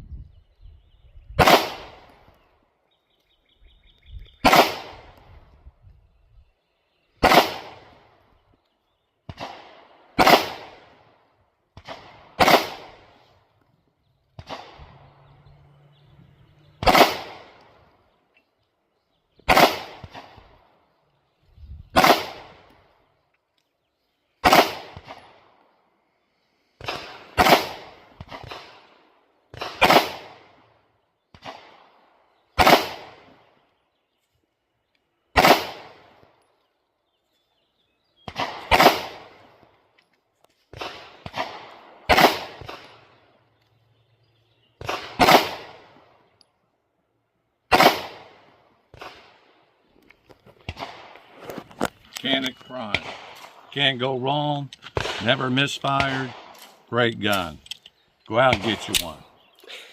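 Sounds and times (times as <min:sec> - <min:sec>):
pistol shots: 0:01.4 - 0:02.2, 0:04.4 - 0:05.2, 0:07.2 - 0:08.1, 0:09.2 - 0:11.0, 0:11.7 - 0:13.2, 0:14.3 - 0:15.1, 0:16.8 - 0:17.8, 0:19.4 - 0:20.5, 0:21.9 - 0:22.7, 0:24.4 - 0:25.6, 0:26.8 - 0:30.7, 0:32.6 - 0:33.5, 0:35.3 - 0:36.2, 0:38.2 - 0:39.6, 0:40.7 - 0:43.2, 0:44.8 - 0:46.2, 0:47.7 - 0:49.5, 0:52.3 - 0:53.9, 0:54.8 - 0:57.5, 0:58.4 - 0:59.3.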